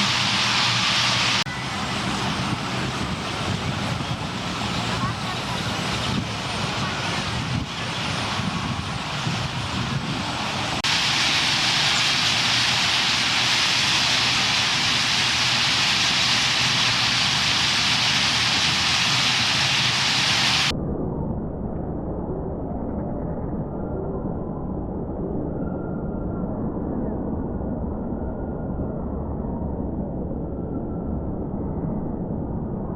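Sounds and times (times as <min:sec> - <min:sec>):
flock of birds chattering: 0:00.0 - 0:20.7
low traffic rumble: 0:00.0 - 0:20.7.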